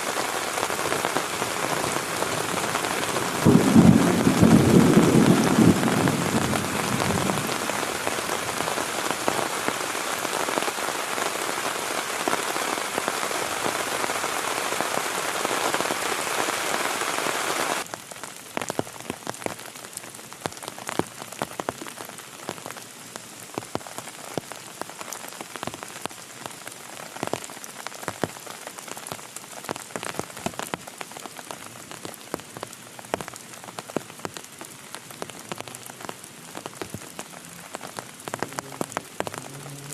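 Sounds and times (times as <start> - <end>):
heavy rain: 0.0 - 39.9
raindrops: 0.0 - 39.9
thunder rumble: 2.3 - 7.8.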